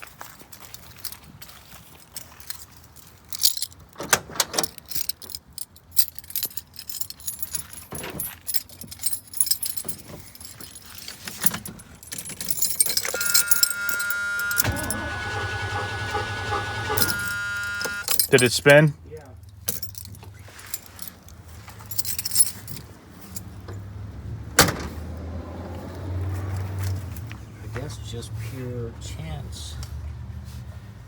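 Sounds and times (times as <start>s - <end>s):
keys jangling and clicking: 0.4s - 23.8s
starter cranking engine: 13.1s - 18.6s
steady warning tone: 13.1s - 18.7s.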